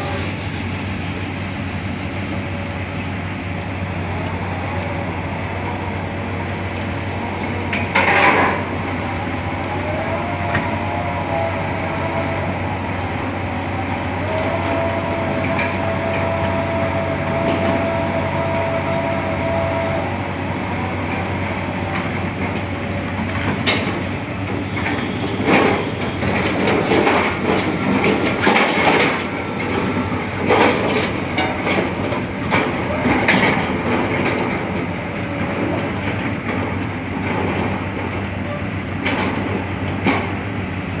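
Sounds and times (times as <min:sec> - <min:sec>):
drilling rig running: 0:00.0 - 0:41.0.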